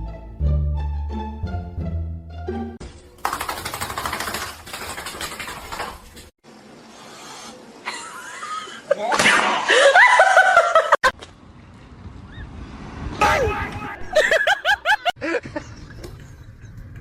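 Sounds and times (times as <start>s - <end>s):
person laughing loudly: 7.8s - 11.1s, 14.0s - 15.6s.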